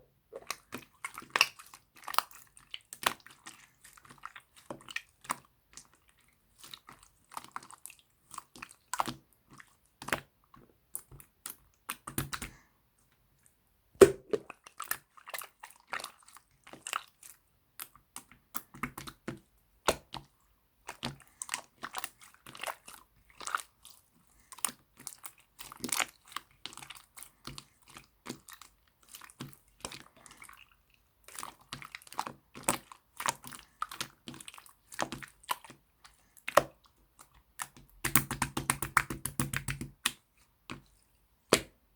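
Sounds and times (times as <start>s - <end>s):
slime squishing wet clicks: 0.3s - 6.0s, 36.4s - 40.9s.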